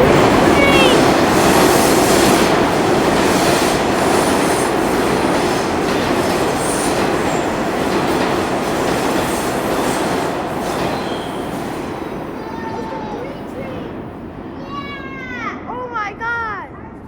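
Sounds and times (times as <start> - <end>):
subway train rumbling: 0.0 - 17.0
high wheel squeals: 10.9 - 11.6.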